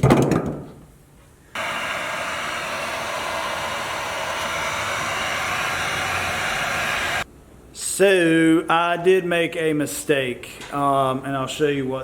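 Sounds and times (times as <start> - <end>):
heat gun blowing hot air: 1.6 - 7.3.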